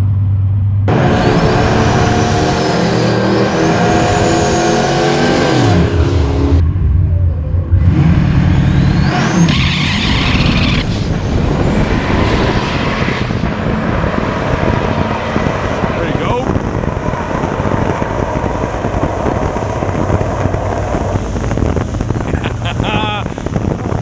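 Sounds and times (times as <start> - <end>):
high rising whine: 0.8 - 24.0
drag car engine running hard: 13.2 - 24.0.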